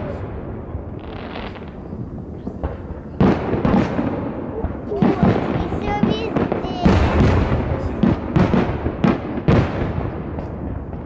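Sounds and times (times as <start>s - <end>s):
firework shells booming: 0.0s - 11.0s
fireworks crackling: 0.0s - 11.0s.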